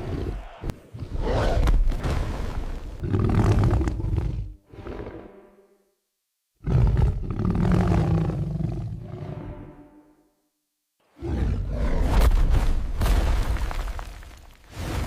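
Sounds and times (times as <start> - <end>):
big animal roaring: 3.0 - 5.4, 6.6 - 9.7, 11.2 - 12.2.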